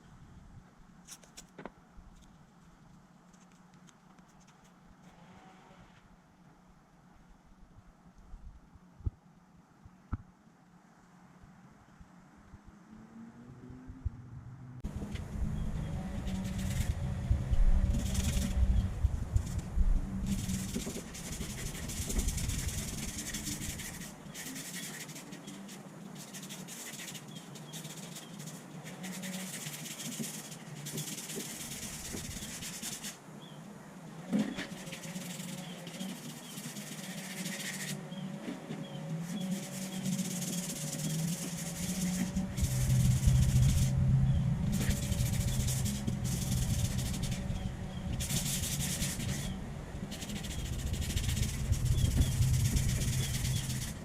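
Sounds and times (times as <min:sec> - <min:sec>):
low hum: 0:04.8 - 0:24.4, 0:37.9 - 0:54.0
sandpaper rubbing on surface: 0:15.5 - 0:33.2, 0:34.4 - 0:44.1, 0:44.7 - 0:54.0.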